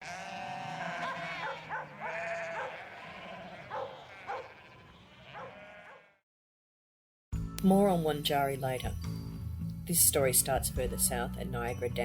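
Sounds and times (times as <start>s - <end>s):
sheep bleating: 0.0s - 6.2s.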